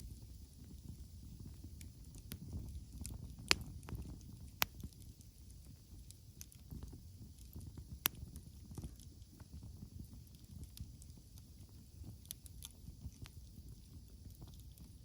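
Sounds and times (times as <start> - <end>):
campfire flames rumbling: 0.0 - 15.0
fire crackling and popping: 0.0 - 15.0.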